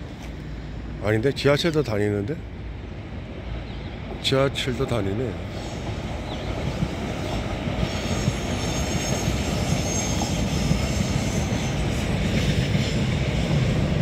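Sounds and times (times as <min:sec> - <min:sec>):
train wheels rumbling on rail: 0:00.0 - 0:14.0
faint high-pitched wheel squeal: 0:07.9 - 0:11.9.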